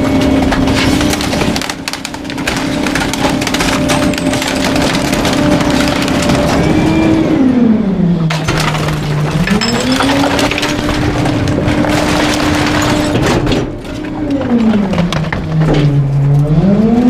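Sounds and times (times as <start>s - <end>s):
garbage truck engine and hydraulics: 0.0s - 17.0s
waste cracking and splintering: 0.1s - 7.1s.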